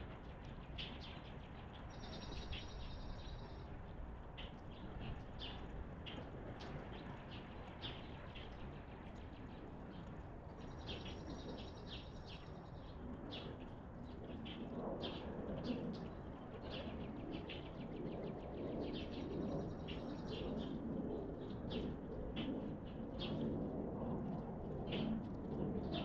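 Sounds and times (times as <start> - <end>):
songbirds chirping: 0.6 - 3.8.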